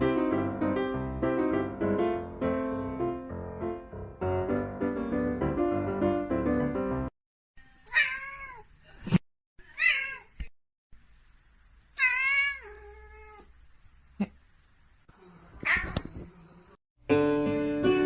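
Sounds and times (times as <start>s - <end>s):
cat meowing: 7.9s - 8.7s, 9.8s - 10.3s, 12.0s - 13.5s.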